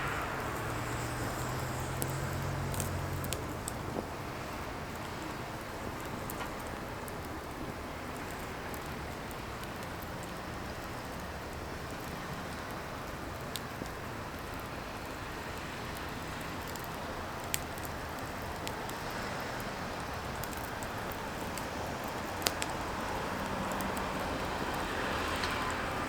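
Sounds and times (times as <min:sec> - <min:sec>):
fire crackles and pops: 0:00.0 - 0:26.0
firewood burning with hiss: 0:00.0 - 0:26.0.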